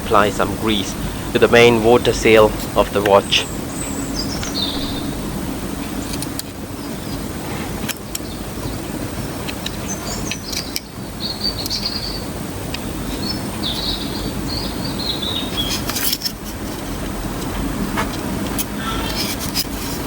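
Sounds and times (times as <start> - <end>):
steady low rumble: 0.0 - 8.8
small bird chirping: 3.2 - 6.1, 9.8 - 12.3, 13.0 - 15.9.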